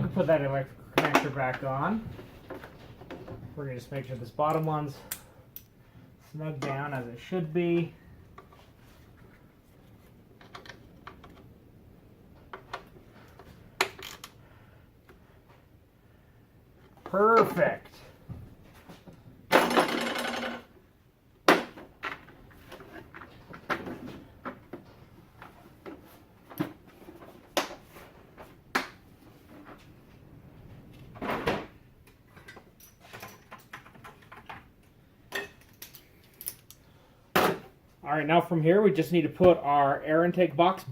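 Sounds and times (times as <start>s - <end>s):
tools and parts clicking: 4.5s - 5.7s, 12.5s - 14.4s, 32.0s - 36.8s.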